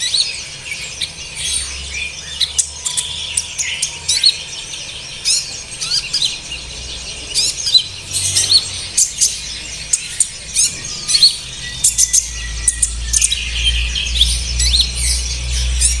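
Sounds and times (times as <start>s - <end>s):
sunbird chirping: 0.0s - 16.0s.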